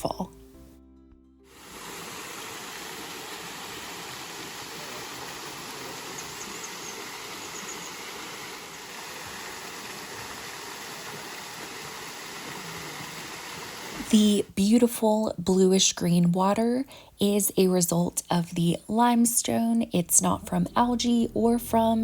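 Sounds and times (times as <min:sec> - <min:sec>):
waterfall rushing: 0:01.5 - 0:14.0.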